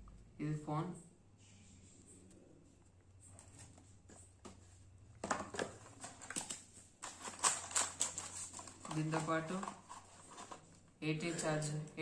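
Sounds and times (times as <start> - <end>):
packaging rustling: 5.2 - 10.8.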